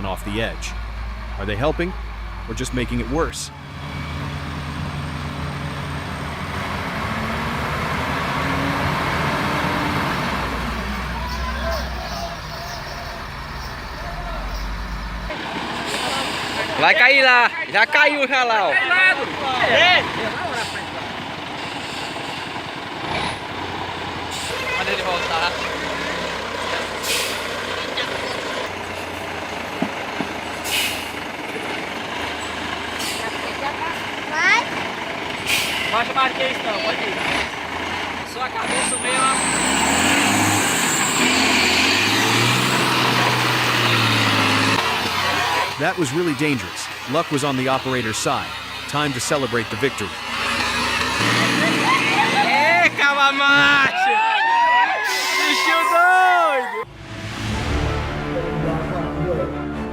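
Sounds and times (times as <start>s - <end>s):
heavy truck engine running: 0.0s - 53.3s
broad rushing noise: 56.8s - 59.9s.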